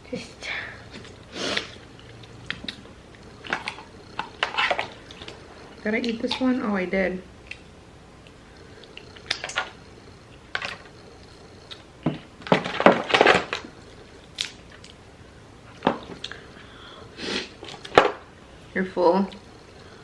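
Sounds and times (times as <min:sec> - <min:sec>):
wet squishing and chewing: 0:00.9 - 0:06.2, 0:07.4 - 0:11.9, 0:13.2 - 0:15.0.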